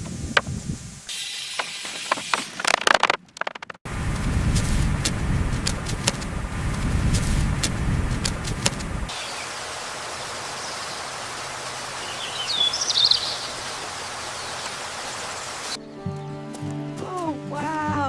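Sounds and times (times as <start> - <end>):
steady outdoor hiss: 0.0 - 2.6, 3.9 - 15.8
sharp clicks: 2.6 - 9.1
bird chirping: 4.6 - 15.8.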